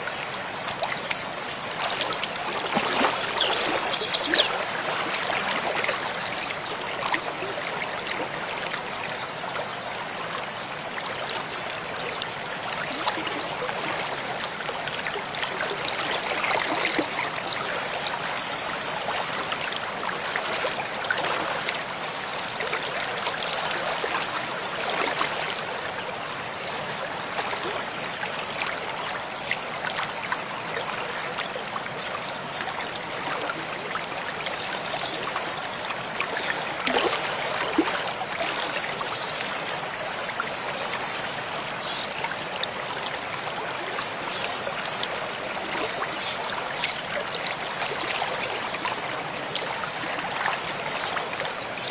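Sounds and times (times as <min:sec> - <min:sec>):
mountain stream splashing: 0:00.0 - 0:51.9
sharp water splashes: 0:01.9 - 0:05.4.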